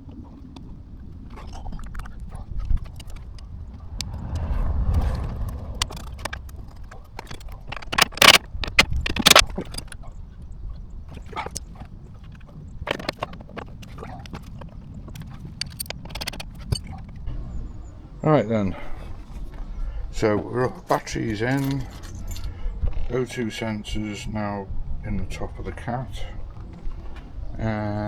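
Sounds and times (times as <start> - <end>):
rumbling scrape: 2.6 - 9.4.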